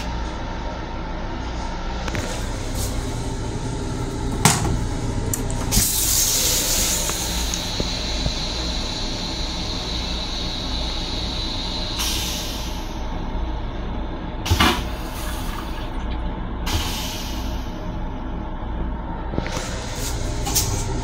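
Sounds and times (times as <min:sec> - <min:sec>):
railcar rumble: 0:00.0 - 0:21.0
hiss: 0:05.7 - 0:13.0, 0:16.7 - 0:17.8.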